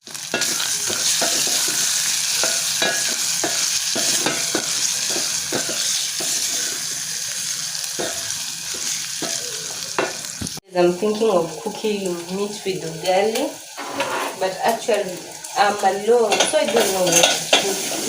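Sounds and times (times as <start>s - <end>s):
beef sizzling in oil: 0.0s - 18.0s
spoon knocking and scraping pot: 0.4s - 6.5s, 16.3s - 18.0s.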